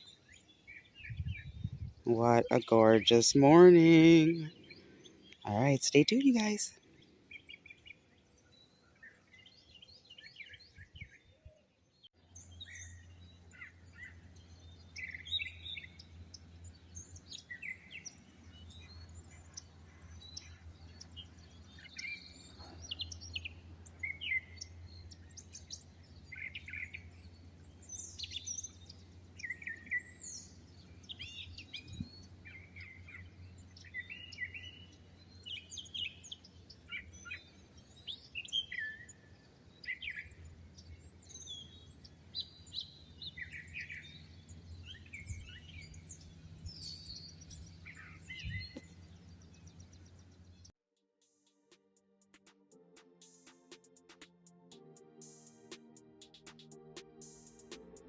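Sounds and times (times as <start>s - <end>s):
songbirds chirping and singing: 0.0s - 50.7s
low steady hum: 12.2s - 50.7s.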